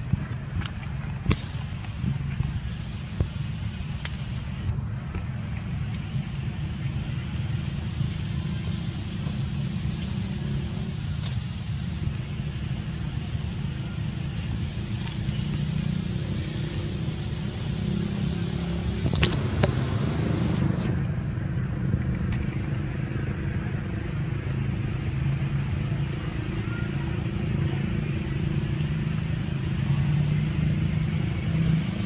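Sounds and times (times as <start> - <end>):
low outdoor rumble: 0.0 - 32.0
sharp clicks: 19.2 - 20.9
brief hiss: 19.2 - 21.0.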